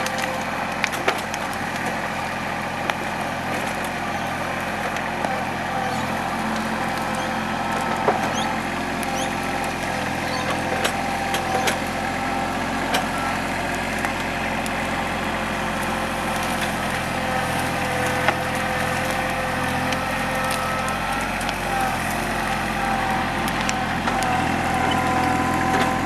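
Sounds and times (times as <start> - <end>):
tractor diesel engine running: 0.0 - 26.0
timber cracking and snapping: 16.4 - 26.0.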